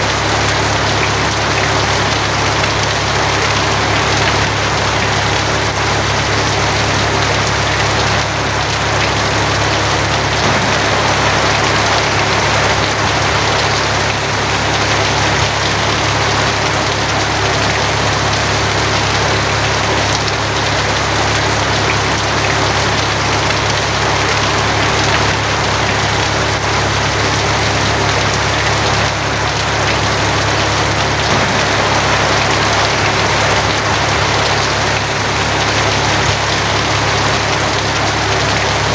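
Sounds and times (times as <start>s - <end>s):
rain drumming on a tin roof: 0.0s - 38.9s
constant low hum: 9.6s - 15.1s, 29.6s - 36.7s.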